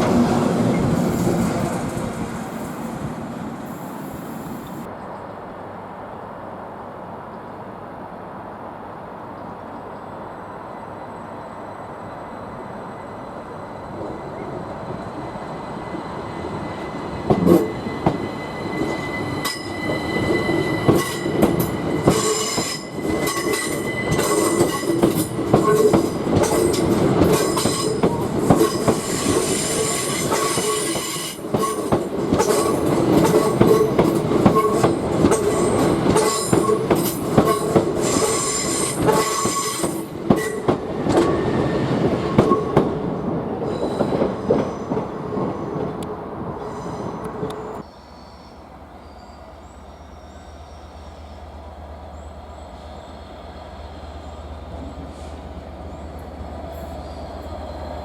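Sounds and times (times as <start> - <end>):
train rumble: 0.0 - 5.0, 11.2 - 48.0
high wheel squeal: 11.0 - 42.0, 52.2 - 58.0.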